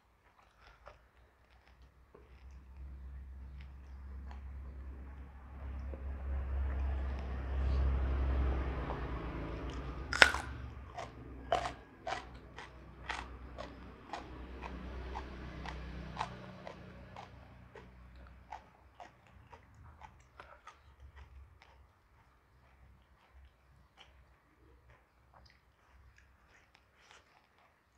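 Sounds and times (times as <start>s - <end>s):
crunchy chewing: 0.0s - 27.9s
low hum: 2.4s - 18.8s.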